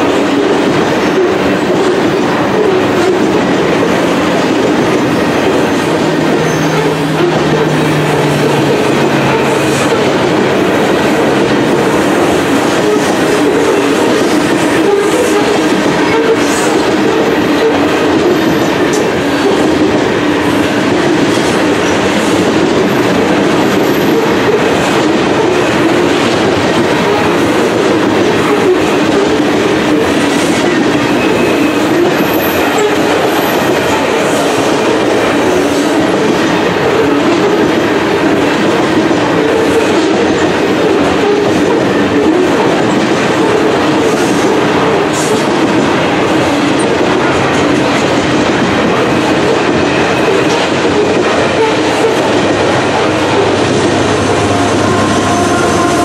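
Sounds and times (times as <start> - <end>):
freight train wheels on rails: 0.0 - 56.0.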